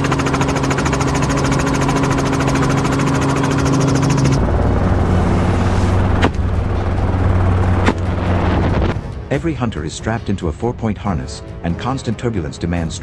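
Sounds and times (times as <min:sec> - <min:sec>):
helicopter engine and rotor: 0:00.0 - 0:09.0.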